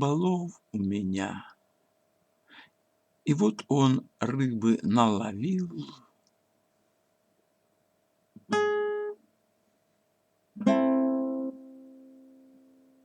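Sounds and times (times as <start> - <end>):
guitar chords strummed: 8.4 - 9.2, 10.6 - 13.0.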